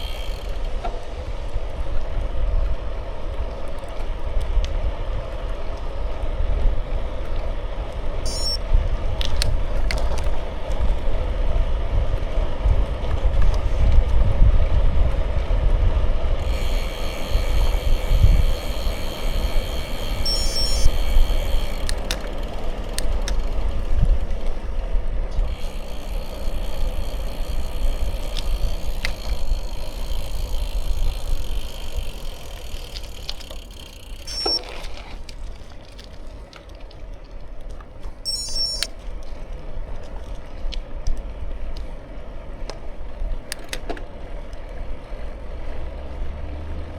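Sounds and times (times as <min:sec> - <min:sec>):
bicycle tyres hissing: 0:00.0 - 0:43.5
wind rumbling on microphone: 0:00.0 - 0:46.9
higher-pitched hum: 0:08.3 - 0:08.6, 0:16.4 - 0:22.1, 0:38.2 - 0:39.0.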